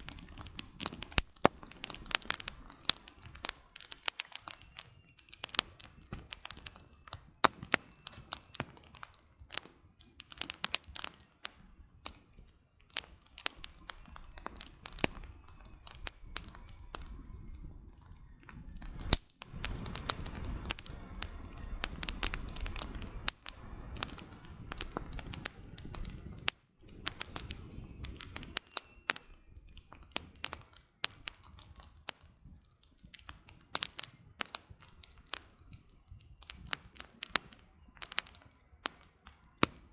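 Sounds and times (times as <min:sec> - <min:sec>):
campfire crackling and popping: 0:00.0 - 0:39.9
low rushing noise: 0:15.0 - 0:28.5.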